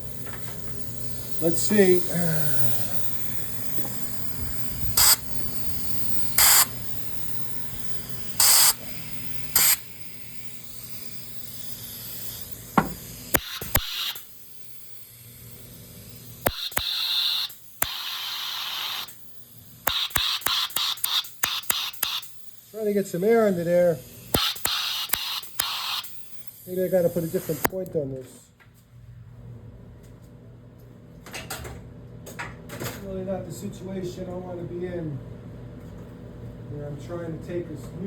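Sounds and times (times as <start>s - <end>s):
air blow gun hissing blasts: 0.0s - 14.8s, 19.8s - 27.7s
trigger clicks: 0.1s - 15.0s, 16.4s - 19.2s, 19.8s - 22.6s, 24.3s - 26.6s.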